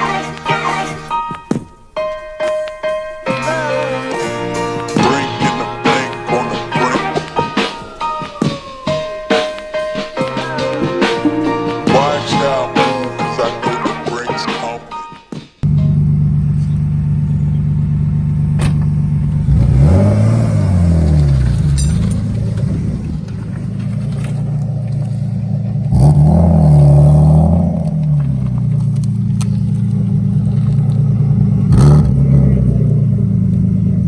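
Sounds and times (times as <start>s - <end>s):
car engine idling and revving: 15.6s - 34.0s.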